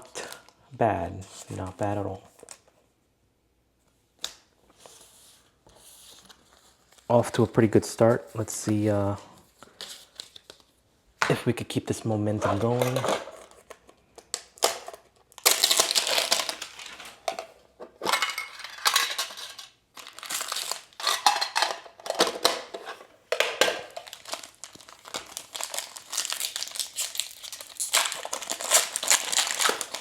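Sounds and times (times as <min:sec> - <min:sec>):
foil wrappers crinkling: 0:14.4 - 0:17.2, 0:18.8 - 0:21.8, 0:23.8 - 0:30.0.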